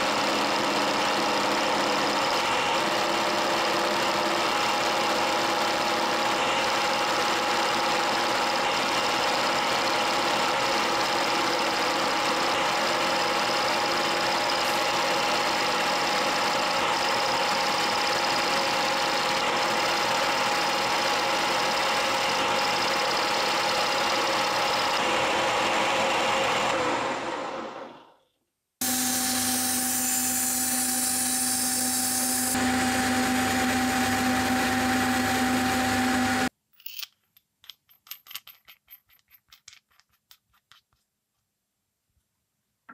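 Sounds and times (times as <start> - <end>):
machine humming with whine: 28.8 - 36.5.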